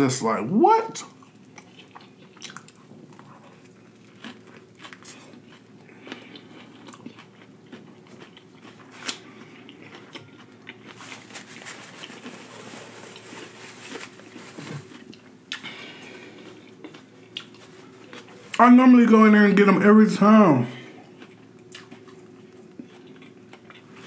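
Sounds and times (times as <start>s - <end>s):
chewing with wet mouth clicks: 1.2s - 11.0s, 16.4s - 18.4s, 21.1s - 24.0s
crunchy sandwich bites: 3.6s - 18.5s.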